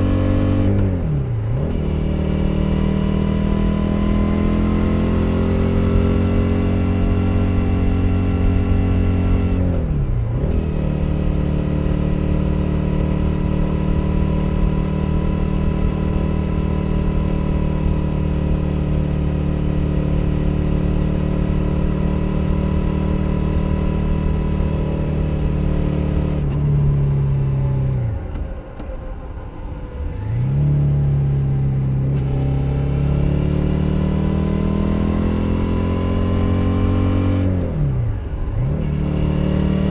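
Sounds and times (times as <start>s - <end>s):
motorcycle engine running: 0.0s - 27.8s.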